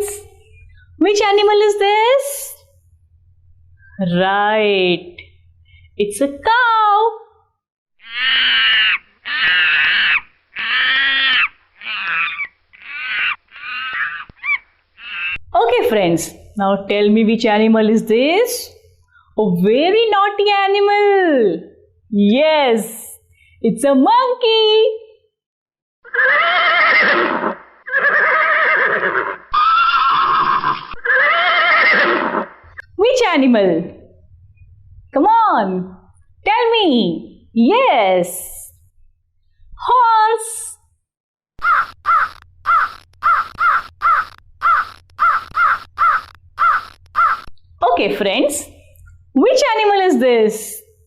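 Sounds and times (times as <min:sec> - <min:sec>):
horse whinnying: 0:08.0 - 0:15.4, 0:26.1 - 0:32.8, 0:41.6 - 0:47.5
animal calling: 0:08.0 - 0:15.5, 0:26.1 - 0:32.9, 0:41.6 - 0:47.5.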